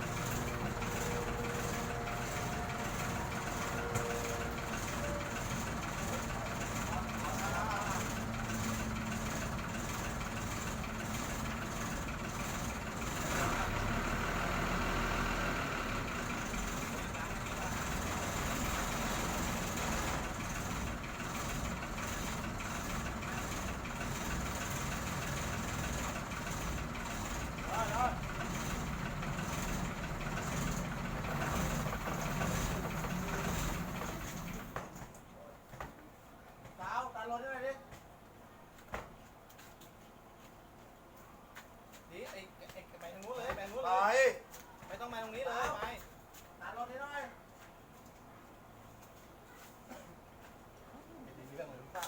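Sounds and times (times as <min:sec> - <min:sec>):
large vehicle engine running: 0:00.0 - 0:35.2.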